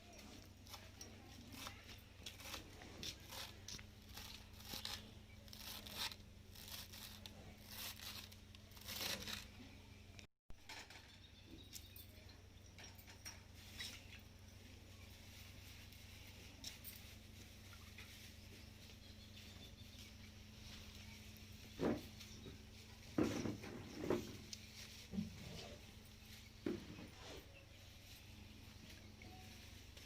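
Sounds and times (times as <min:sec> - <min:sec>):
kitchen scrapes and crunches: 0:00.2 - 0:09.5.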